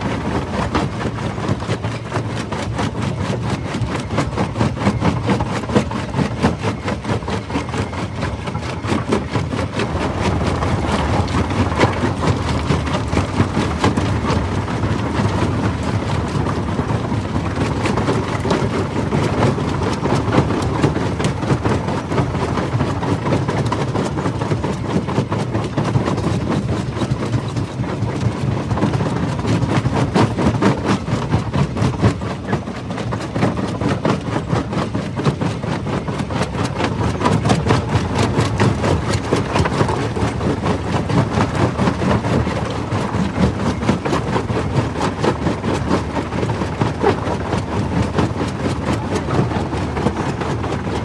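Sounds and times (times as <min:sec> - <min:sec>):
crusher mechanical rumble: 0:08.9 - 0:23.0.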